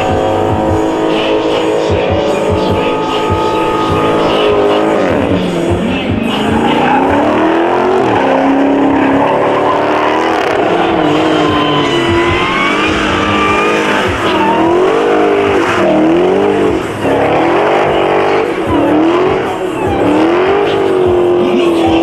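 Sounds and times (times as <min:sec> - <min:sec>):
car engine revving hard: 0:00.0 - 0:22.0
tires squealing: 0:00.0 - 0:22.0.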